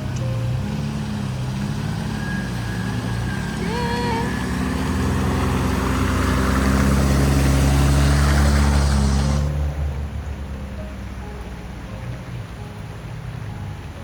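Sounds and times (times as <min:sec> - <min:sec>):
vehicle engine running: 0:00.0 - 0:14.0
short voice-like sound: 0:03.6 - 0:04.4.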